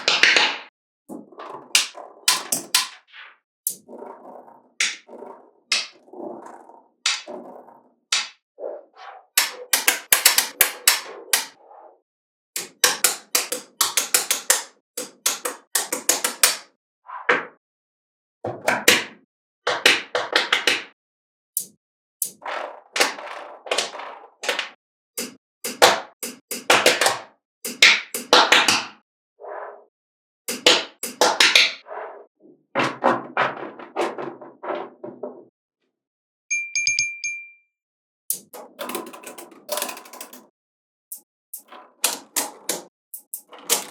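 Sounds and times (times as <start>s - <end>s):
metallic ringing pings: 36.5s - 37.7s
magnetic balls clicking together: 38.3s - 40.4s, 41.1s - 43.9s.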